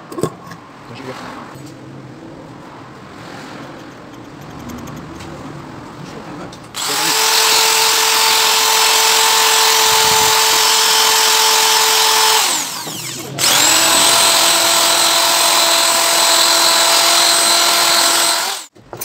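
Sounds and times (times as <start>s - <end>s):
electric drill whining: 6.8s - 18.7s.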